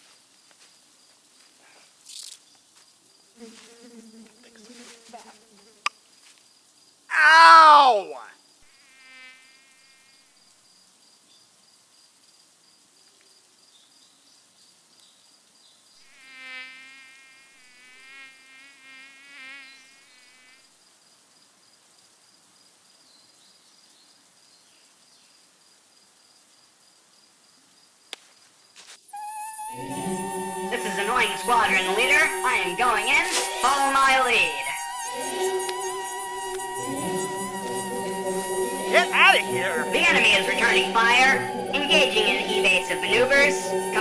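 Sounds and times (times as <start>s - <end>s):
mosquito whine: 3.4s - 5.9s, 29.1s - 44.0s.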